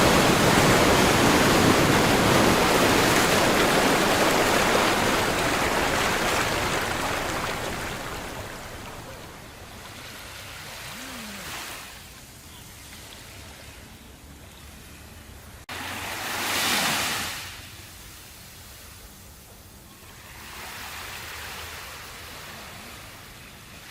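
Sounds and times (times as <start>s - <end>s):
ocean waves washing up: 0.0s - 12.1s.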